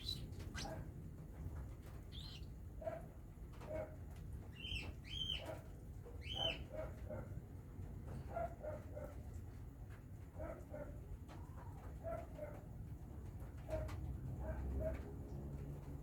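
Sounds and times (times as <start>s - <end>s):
baby cockatiels chirping: 0.0s - 0.7s, 2.2s - 2.5s.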